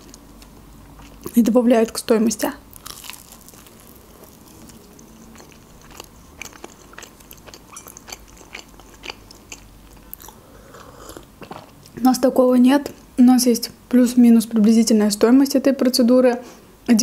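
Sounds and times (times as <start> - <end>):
chewing with wet mouth clicks: 2.8 - 12.0.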